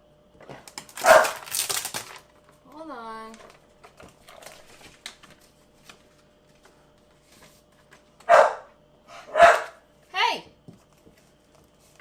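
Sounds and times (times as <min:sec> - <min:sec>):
dog barking: 0:01.0 - 0:01.4, 0:08.3 - 0:09.8.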